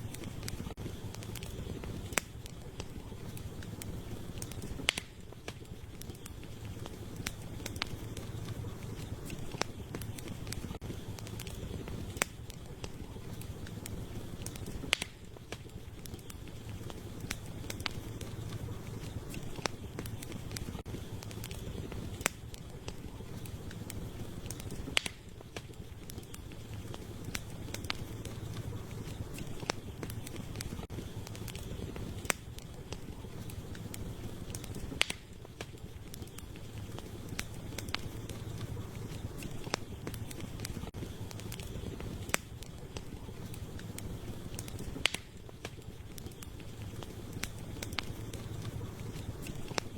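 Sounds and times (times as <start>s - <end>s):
campfire crackling: 0.0s - 49.9s
fire pops and snaps: 0.0s - 49.9s
low rumble of flames: 0.0s - 49.9s.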